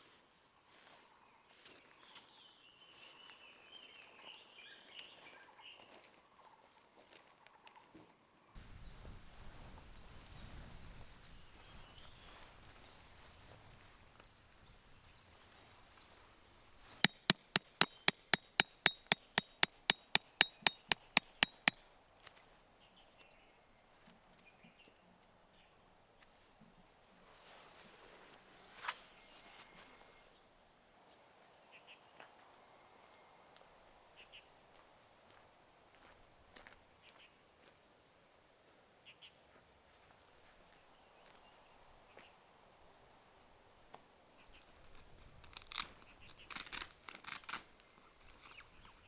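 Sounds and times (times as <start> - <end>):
faint ticks: 17.1 - 21.8
rapid sharp clicks: 17.1 - 21.8.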